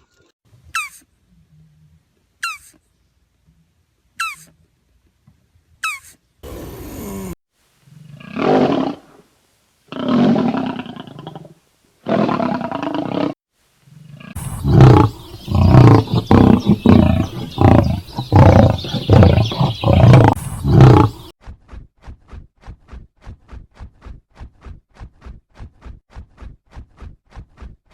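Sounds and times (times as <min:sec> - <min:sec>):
large animal low calls: 0:12.1 - 0:21.3
animal short grunting calls: 0:14.2 - 0:21.3.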